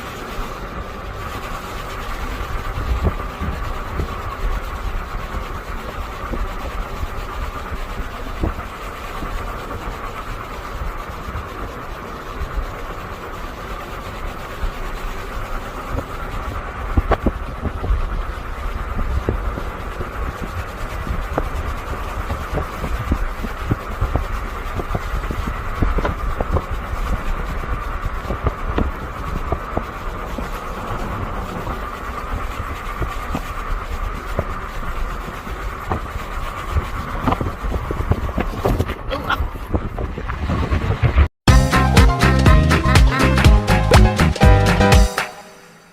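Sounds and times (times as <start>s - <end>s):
road and tyre rumble: 0.0s - 44.8s.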